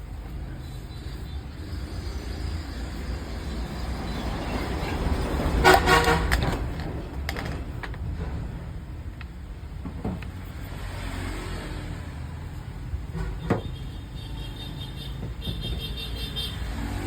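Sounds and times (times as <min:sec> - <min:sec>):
horn honk: 0:05.6 - 0:06.6, 0:13.6 - 0:17.0
vehicle passing by: 0:10.4 - 0:12.8, 0:16.5 - 0:17.0.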